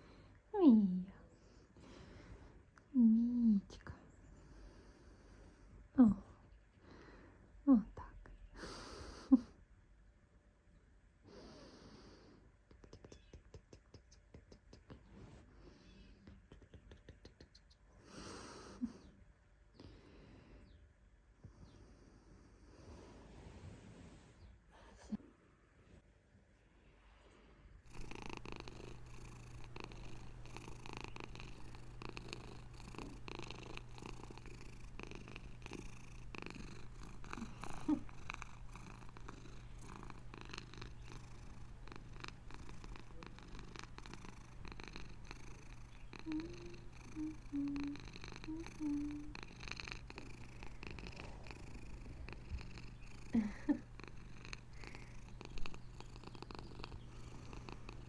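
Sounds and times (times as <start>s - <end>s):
cat purring: 27.7s - 58.0s.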